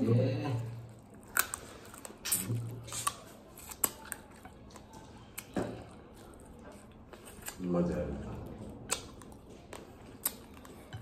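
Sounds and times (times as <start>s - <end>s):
person chewing with lip smacks: 0.8s - 7.6s, 8.4s - 11.0s.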